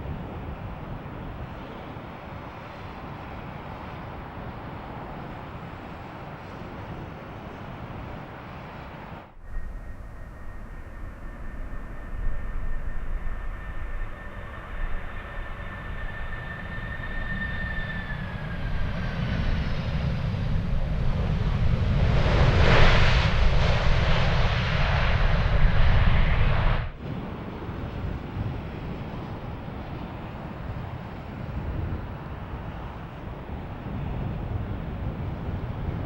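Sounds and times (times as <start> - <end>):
jet engine roar: 0.0 - 36.0
jet engines whining: 8.5 - 33.0.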